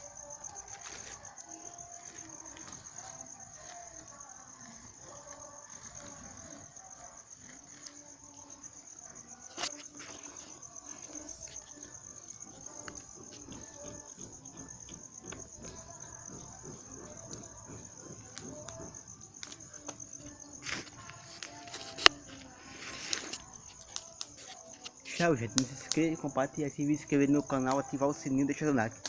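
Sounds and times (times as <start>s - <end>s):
crickets trilling: 0.0s - 29.0s
faint crackles: 15.6s - 26.1s.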